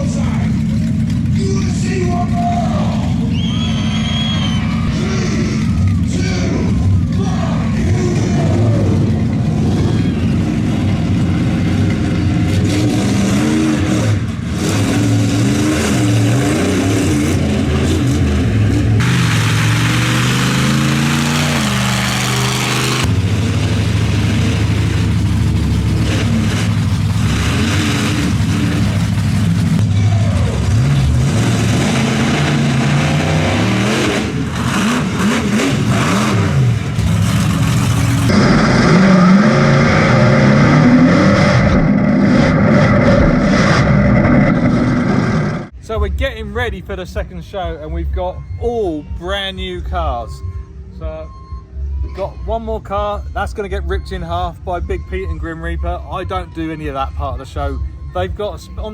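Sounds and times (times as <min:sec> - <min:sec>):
truck engine revving: 0:00.0 - 0:58.9
loud rushing noise: 0:06.8 - 0:45.8.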